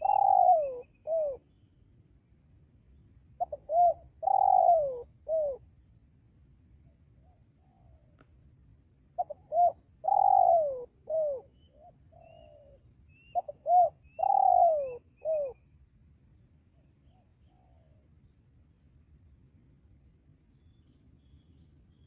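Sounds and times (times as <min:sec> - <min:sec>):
dove cooing: 0:00.0 - 0:01.5, 0:03.4 - 0:05.6, 0:09.2 - 0:15.6.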